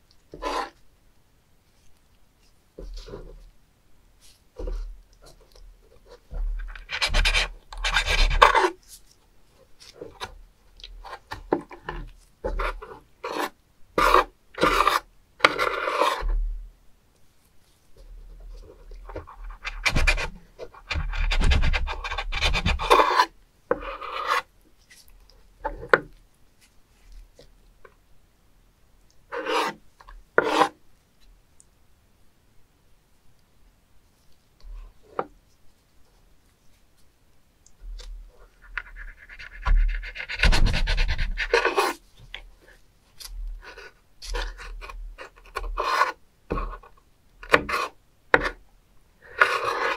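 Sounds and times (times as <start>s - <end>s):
knife scraping wooden board: 0.3s - 0.8s, 6.1s - 8.8s, 11.9s - 16.4s, 19.4s - 24.5s, 29.3s - 29.8s, 30.4s - 30.8s, 38.7s - 42.0s, 43.6s - 46.9s, 47.5s - 48.6s, 49.2s - 49.9s.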